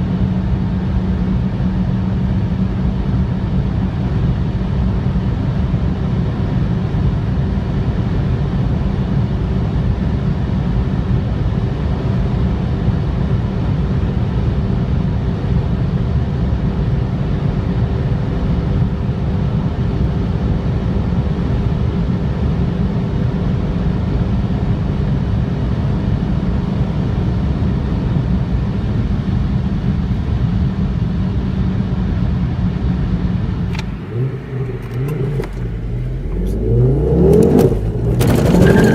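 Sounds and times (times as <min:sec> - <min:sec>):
car engine and road rumble: 0:00.0 - 0:38.9
clicks: 0:33.7 - 0:38.9.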